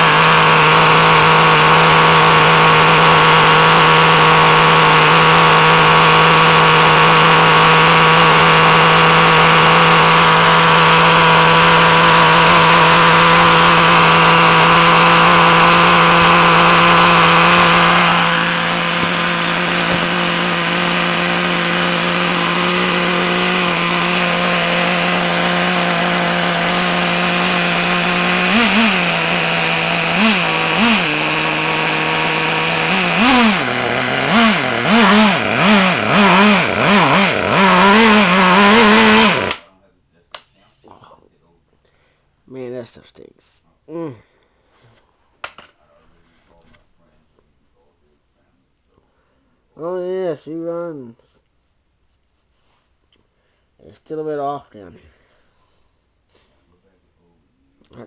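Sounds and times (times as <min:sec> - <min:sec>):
model engine high-pitched idle: 0:00.0 - 0:39.6.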